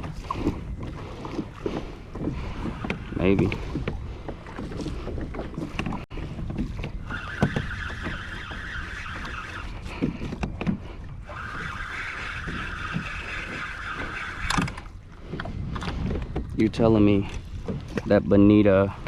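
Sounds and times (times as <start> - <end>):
water: 0.0 - 19.0
wind noise: 0.0 - 19.0
fishing reel whirring: 7.0 - 9.8, 11.3 - 14.9.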